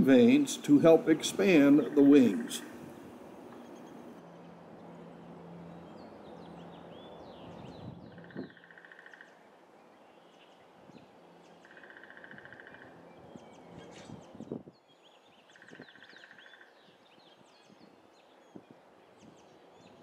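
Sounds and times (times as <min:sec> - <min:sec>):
low steady hum: 0:00.0 - 0:08.2
birds chirping: 0:00.0 - 0:20.0.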